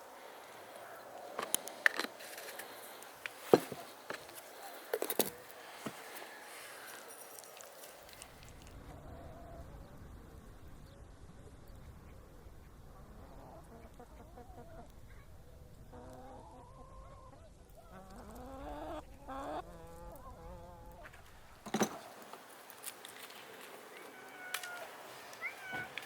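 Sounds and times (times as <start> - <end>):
chickens clucking: 13.0 - 15.3, 15.9 - 21.2, 21.8 - 26.0.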